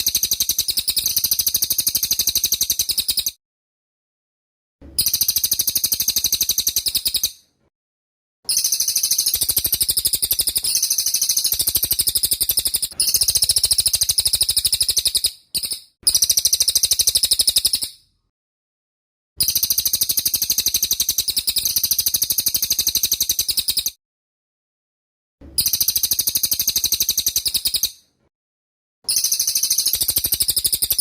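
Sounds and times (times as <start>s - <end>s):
songbird rapid high chirping: 8.5s - 18.0s, 29.1s - 31.0s.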